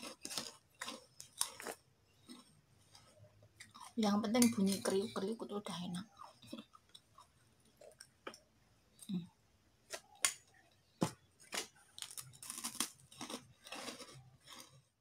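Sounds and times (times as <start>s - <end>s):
crisp cracker crunches: 0.0s - 2.5s, 11.4s - 14.9s
person chewing: 0.0s - 4.0s, 6.1s - 8.4s, 9.9s - 14.9s.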